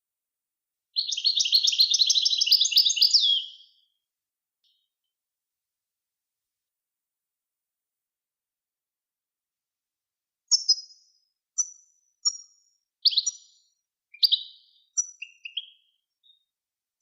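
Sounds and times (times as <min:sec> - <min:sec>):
songbird chirped phrases: 0:01.0 - 0:03.7, 0:14.2 - 0:16.4.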